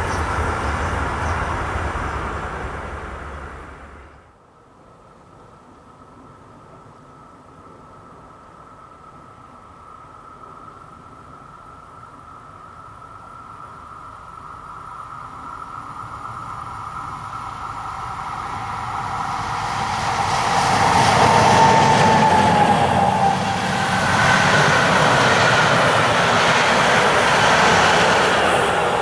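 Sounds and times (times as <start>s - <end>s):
passenger train passing: 0.0s - 4.3s, 14.3s - 29.0s.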